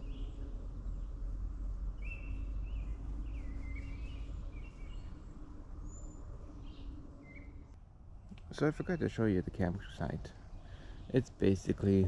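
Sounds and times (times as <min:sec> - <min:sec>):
songbirds chirping and warbling: 0:00.0 - 0:12.0.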